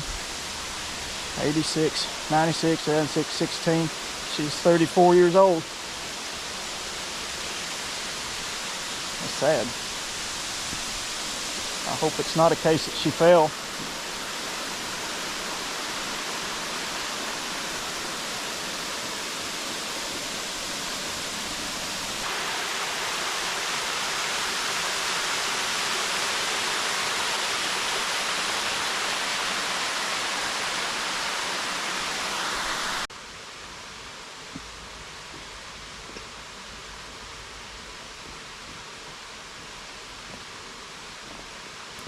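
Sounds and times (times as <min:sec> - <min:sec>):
waterfall rushing: 0:00.0 - 0:33.1.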